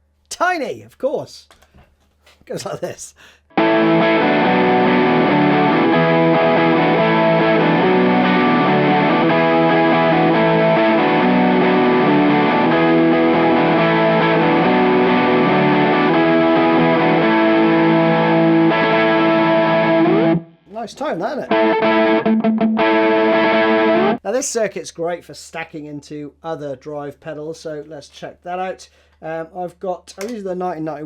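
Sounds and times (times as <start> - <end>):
overdriven electric guitar riff: 3.5 - 20.6, 21.4 - 24.2.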